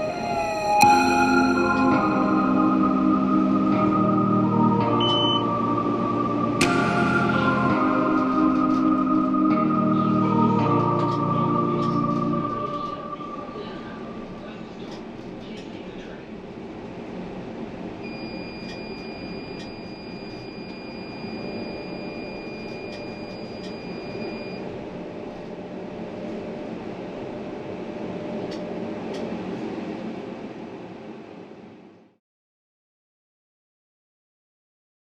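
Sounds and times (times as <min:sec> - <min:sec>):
high electronic tone: 0:00.0 - 0:14.1
tram rumble: 0:00.0 - 0:32.2.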